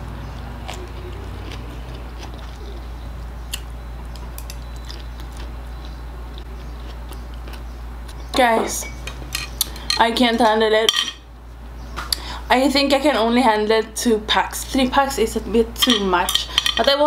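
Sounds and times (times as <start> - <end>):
steady low hum: 0.0 - 17.0
person chewing noodles: 0.4 - 8.2.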